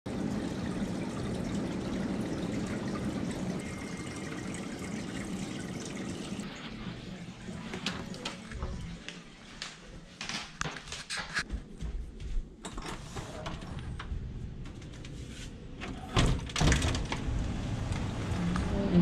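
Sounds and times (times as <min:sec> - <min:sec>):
running water rushing: 0:00.1 - 0:08.4.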